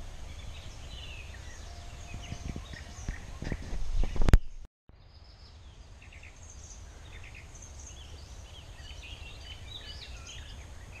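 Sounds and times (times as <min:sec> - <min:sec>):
low steady outdoor rumble: 0:00.0 - 0:11.0
small birds chirping: 0:00.0 - 0:11.0.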